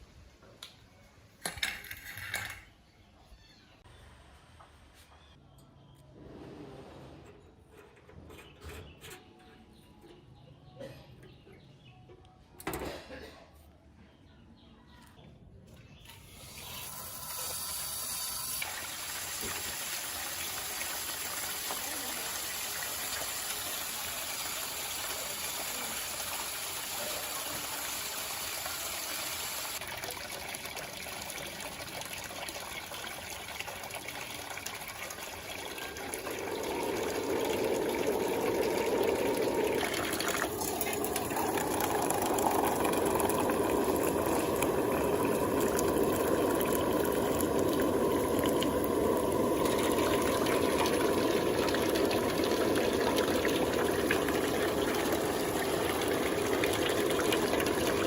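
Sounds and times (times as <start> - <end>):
water running from tap: 16.2 - 58.0.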